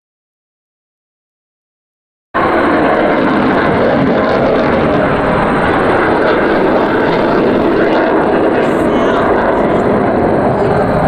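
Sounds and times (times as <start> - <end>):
fighter jet engine noise: 2.4 - 11.0.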